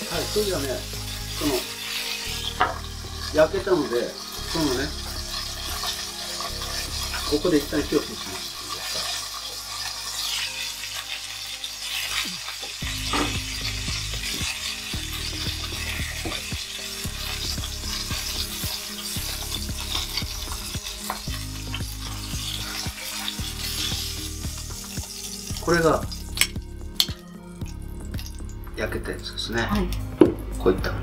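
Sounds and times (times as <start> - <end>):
chicken sizzling in a skillet: 0.0 - 28.5
chopsticks clicking against pan: 26.4 - 27.2.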